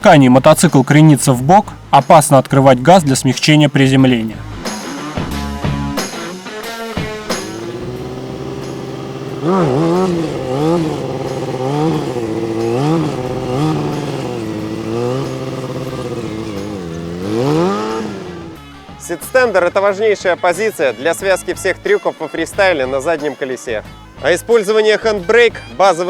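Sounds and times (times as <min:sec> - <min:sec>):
motorcycle engine revving: 0:04.3 - 0:19.6.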